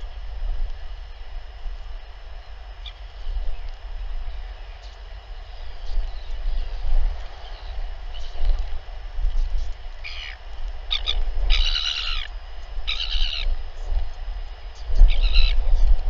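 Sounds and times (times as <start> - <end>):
steady low rumble: 0.0 - 16.0
short bird calls: 10.0 - 13.6.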